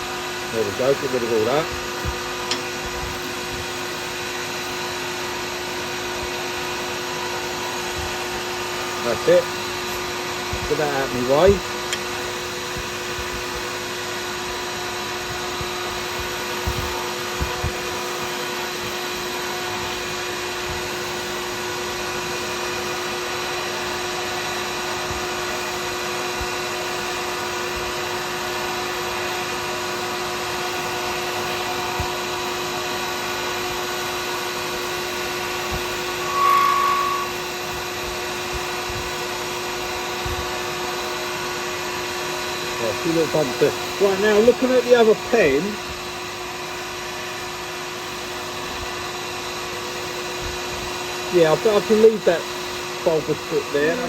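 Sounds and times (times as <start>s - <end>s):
high whine: 0.0s - 24.1s, 30.8s - 41.3s, 50.0s - 54.0s
lathe humming: 0.0s - 26.3s, 28.2s - 38.0s, 51.0s - 54.0s.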